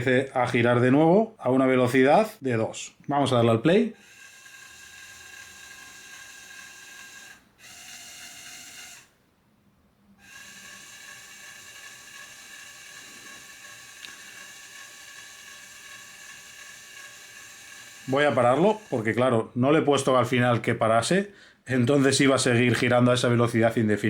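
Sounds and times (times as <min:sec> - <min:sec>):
toy motor spinning fan: 0:03.3 - 0:09.2, 0:10.2 - 0:19.4.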